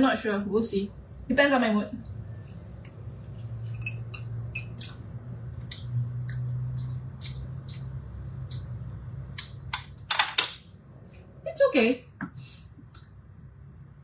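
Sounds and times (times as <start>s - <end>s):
low steady hum: 0.0s - 14.0s
chewing and lip smacks: 3.6s - 8.8s.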